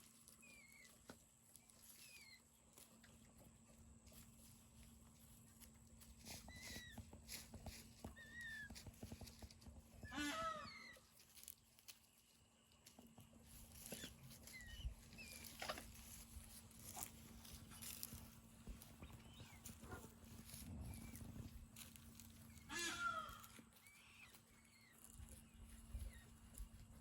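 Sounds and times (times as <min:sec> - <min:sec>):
peafowl calling: 0:10.0 - 0:11.1, 0:22.3 - 0:25.4.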